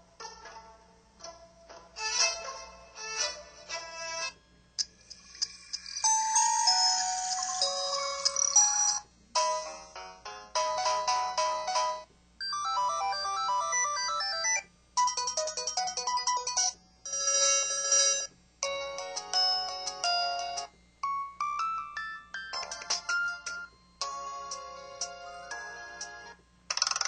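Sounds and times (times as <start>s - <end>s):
phone ringtone melodies: 5.4s - 27.0s.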